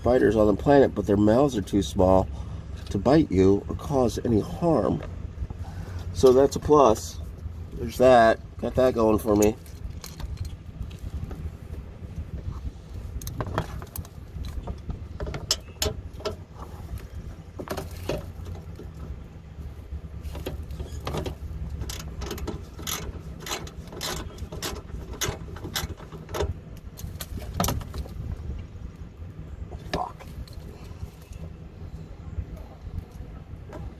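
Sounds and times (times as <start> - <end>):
steady low rumble: 0.0 - 33.9
ratchet wrench clicking: 21.8 - 26.0.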